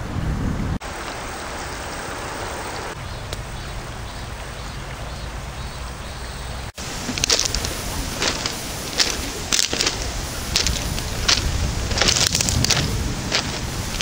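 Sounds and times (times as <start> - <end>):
wind rumble on microphone: 0.0 - 14.0
heavy rain hissing: 0.8 - 14.0.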